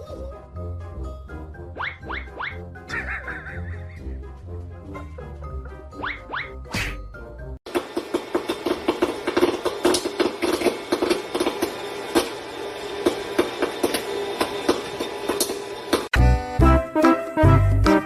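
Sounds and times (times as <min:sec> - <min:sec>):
music: 0:00.0 - 0:07.6, 0:16.1 - 0:18.0.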